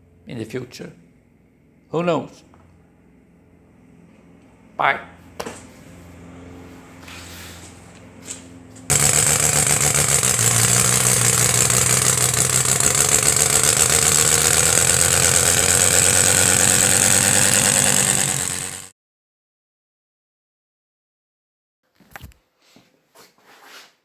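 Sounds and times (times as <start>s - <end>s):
radial engine running: 5.9s - 18.9s.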